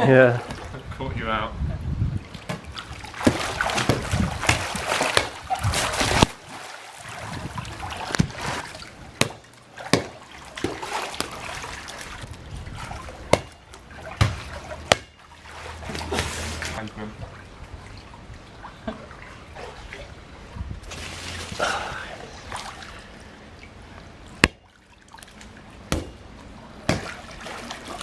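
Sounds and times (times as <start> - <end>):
pool water splashing: 0.0 - 1.5, 2.2 - 28.0
slaps on water: 2.4 - 6.7, 7.3 - 15.2, 24.4 - 24.6, 25.2 - 26.2, 26.8 - 28.0.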